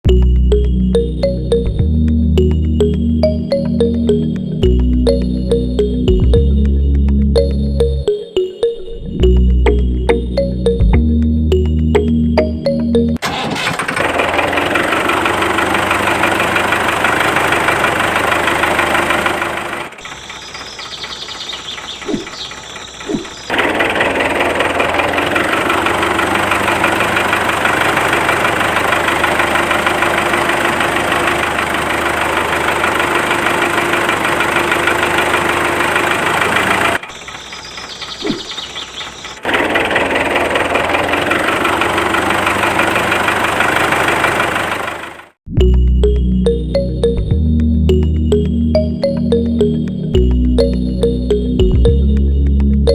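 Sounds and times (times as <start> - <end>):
small diesel engine running: 0.0 - 8.1, 9.2 - 45.4, 46.0 - 52.9.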